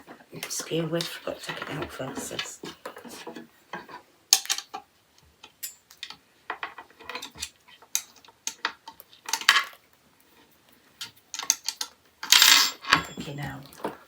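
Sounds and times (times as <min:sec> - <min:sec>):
rack parts clicking and clinking: 0:05.6 - 0:08.7.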